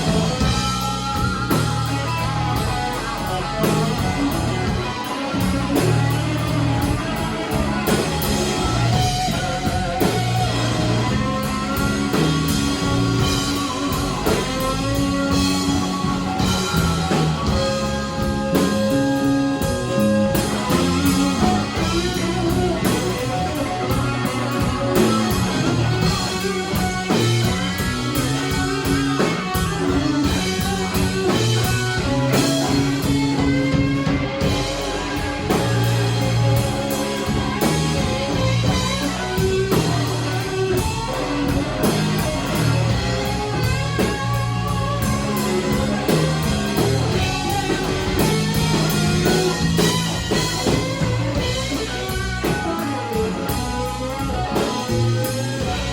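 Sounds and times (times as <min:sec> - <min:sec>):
blues band playing: 0:00.0 - 0:55.9
electric guitar solo: 0:00.0 - 0:55.9.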